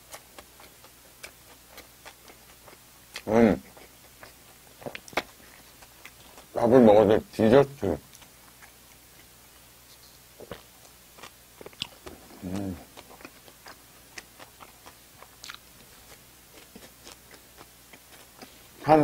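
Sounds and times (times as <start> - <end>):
person chewing soft food: 0.0 - 19.0
person humming low: 12.2 - 12.9.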